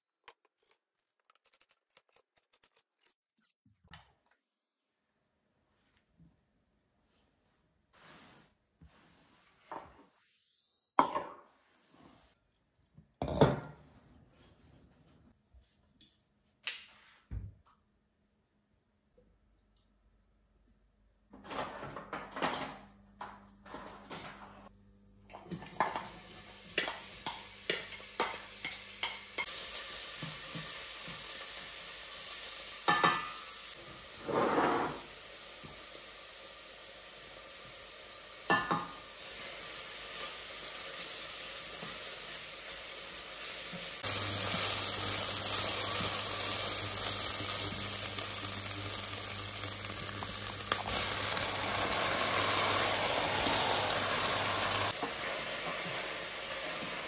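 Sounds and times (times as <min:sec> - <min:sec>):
food sizzling in a frying pan: 0:25.7 - 0:57.0.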